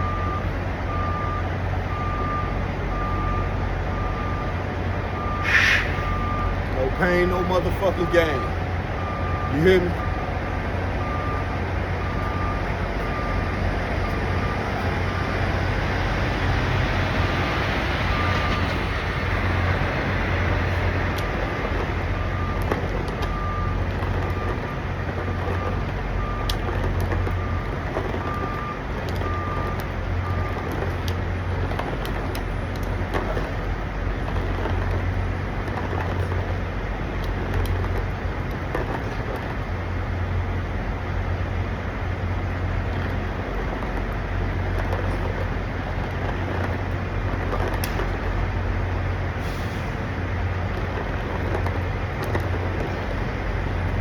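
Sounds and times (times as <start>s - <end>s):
reversing alarm beeps: 0.0s - 16.1s, 18.0s - 18.8s, 21.2s - 33.6s
diesel trucks idling: 0.0s - 54.0s.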